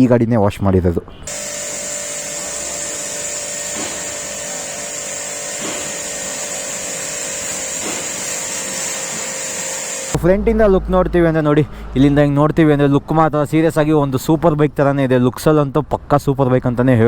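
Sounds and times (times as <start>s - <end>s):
pressure washer pump hum: 1.3s - 10.2s
water jet hissing: 1.3s - 10.2s.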